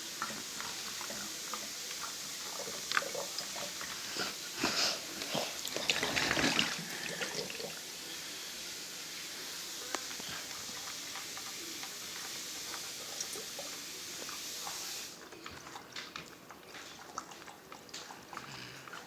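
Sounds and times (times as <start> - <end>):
water swirling in bottle: 5.0 - 7.8.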